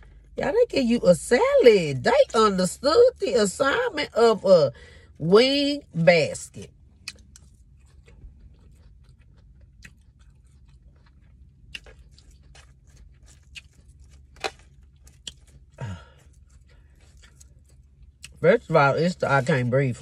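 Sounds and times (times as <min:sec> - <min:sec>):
low steady hum: 0:00.0 - 0:20.0
person chewing food: 0:06.6 - 0:18.4.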